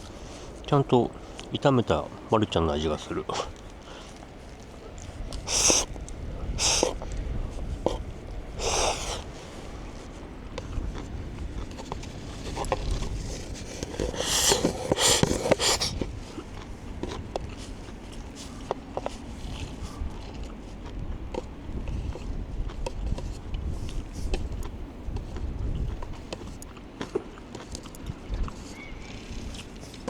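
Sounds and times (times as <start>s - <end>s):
low steady rumble: 0.0s - 30.0s
person slurping noodles: 5.3s - 9.6s, 12.5s - 16.1s.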